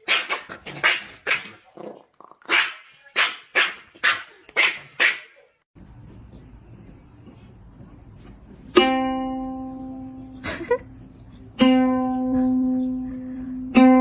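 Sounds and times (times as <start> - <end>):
plucked string notes: 8.7 - 14.0.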